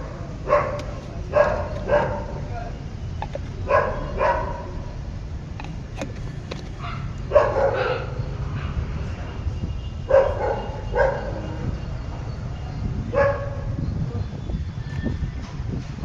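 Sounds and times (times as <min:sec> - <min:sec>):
dog barking: 0:00.4 - 0:02.4, 0:03.6 - 0:04.7, 0:06.8 - 0:08.8, 0:10.1 - 0:11.6, 0:13.1 - 0:13.7.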